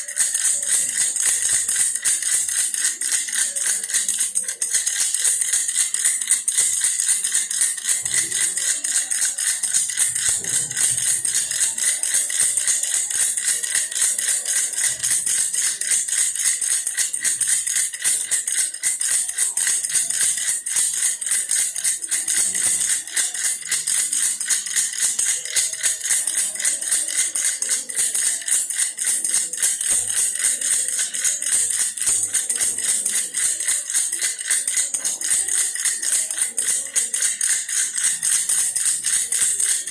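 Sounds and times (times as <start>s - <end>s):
toy rattle shaken rapidly: 0.0s - 39.9s.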